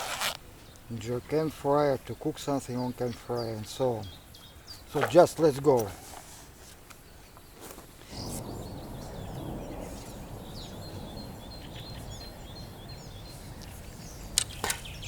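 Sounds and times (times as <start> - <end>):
small birds chirping: 0.0 - 15.0
low rushing noise: 8.1 - 15.0.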